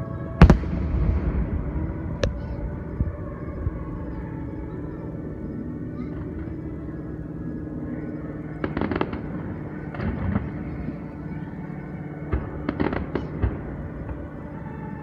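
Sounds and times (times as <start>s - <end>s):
steady background hum: 0.0s - 15.0s
distant fireworks bursting: 0.3s - 7.4s, 8.4s - 14.8s.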